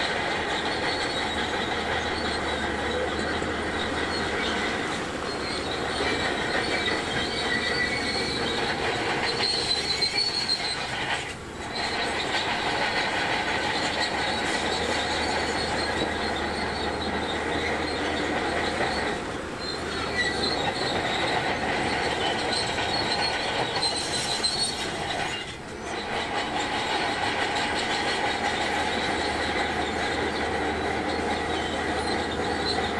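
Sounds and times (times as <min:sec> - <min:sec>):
bulldozer engine running: 0:00.0 - 0:32.9
steel tracks squealing and clanking: 0:00.0 - 0:32.9.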